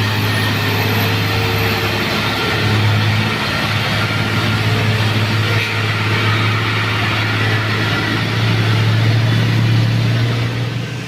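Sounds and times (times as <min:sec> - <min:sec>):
truck diesel engine running: 0:00.0 - 0:11.0.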